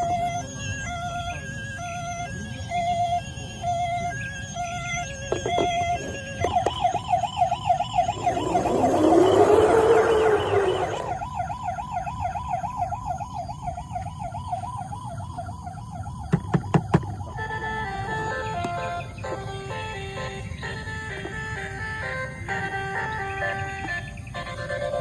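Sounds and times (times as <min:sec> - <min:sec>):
electronic toy siren warbling: 0:00.0 - 0:25.0
whoosh with rising-falling tone: 0:07.4 - 0:11.3.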